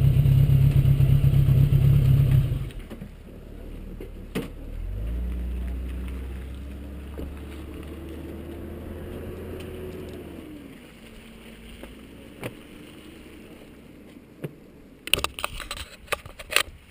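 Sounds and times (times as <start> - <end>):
motorcycle engine running: 0.0 - 2.9
sharp clicks and crackles: 4.0 - 16.9.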